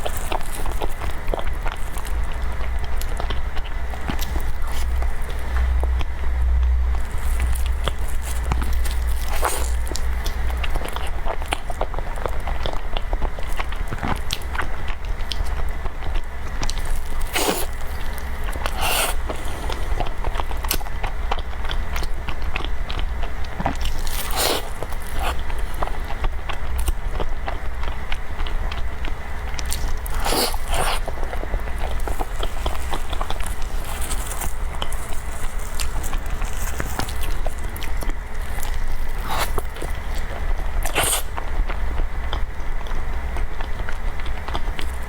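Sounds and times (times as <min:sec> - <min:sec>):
person chewing food: 0:00.0 - 0:45.0
low hum: 0:01.9 - 0:12.5, 0:16.4 - 0:23.3.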